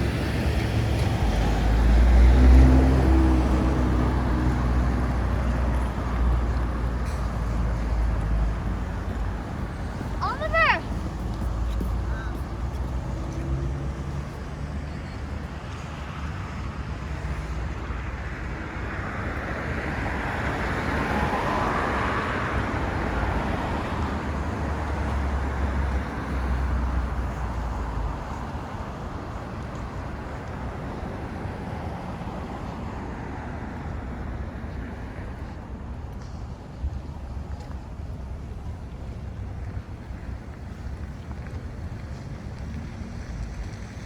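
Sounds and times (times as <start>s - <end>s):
vehicle passing: 0.0s - 14.8s.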